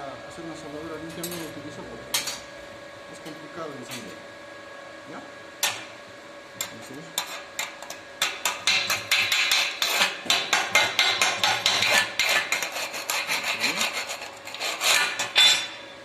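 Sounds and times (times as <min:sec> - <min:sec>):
wire brush scraping metal: 0:07.2 - 0:15.7.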